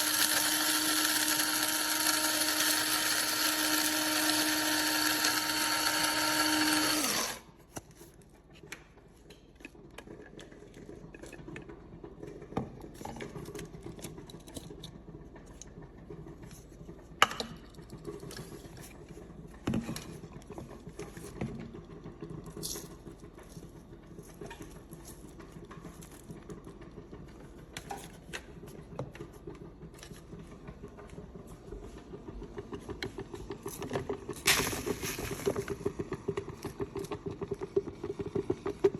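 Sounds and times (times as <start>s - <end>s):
coffee grinder motor whining: 0.0s - 7.6s.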